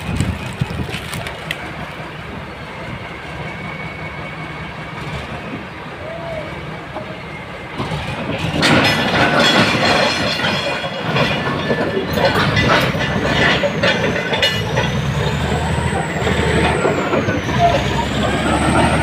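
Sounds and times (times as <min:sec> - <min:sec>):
crawler tracks clanking and squealing: 0:00.0 - 0:19.0
diesel engine running: 0:07.6 - 0:19.0.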